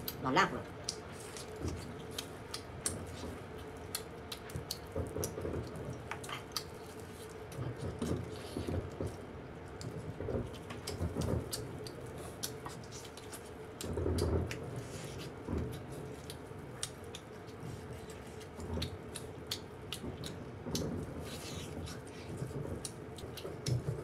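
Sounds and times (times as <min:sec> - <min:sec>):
wet chewing: 0:00.0 - 0:24.0
lip smacks: 0:06.1 - 0:07.6, 0:10.8 - 0:13.9.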